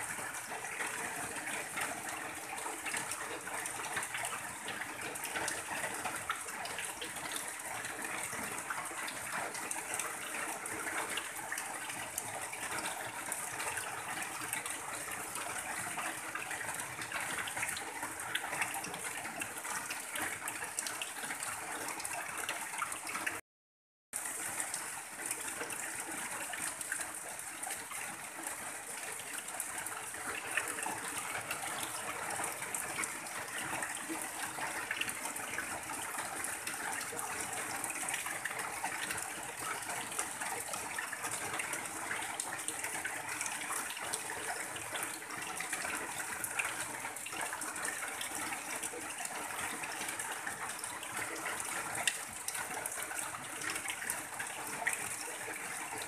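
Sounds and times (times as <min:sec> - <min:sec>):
heavy rain on a tin roof: 0:00.0 - 0:23.4, 0:24.2 - 0:56.0
water pouring off roof edge: 0:24.2 - 0:56.0.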